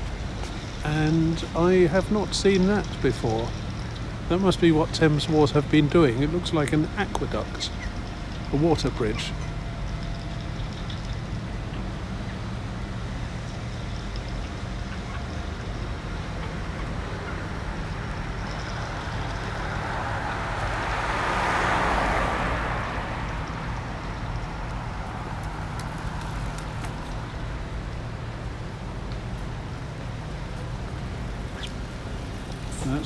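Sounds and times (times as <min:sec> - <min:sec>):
road traffic hum: 0:00.0 - 0:33.0
vehicle passing close: 0:16.5 - 0:33.0.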